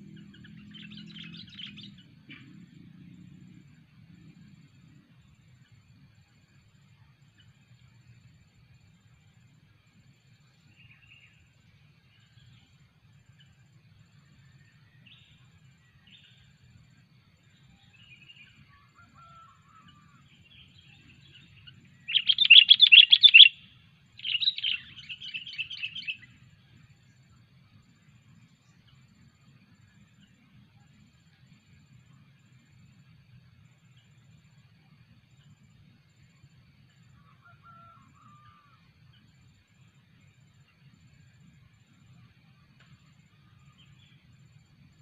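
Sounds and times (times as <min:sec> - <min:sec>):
bird calling soft notes: 0:20.9 - 0:23.6
bird rapid chattering: 0:22.1 - 0:23.5.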